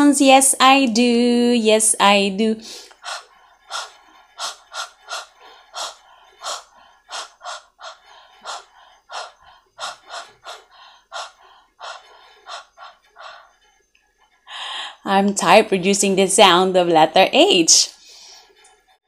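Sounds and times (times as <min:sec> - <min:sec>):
woman making breathy h sounds: 0:02.6 - 0:13.6.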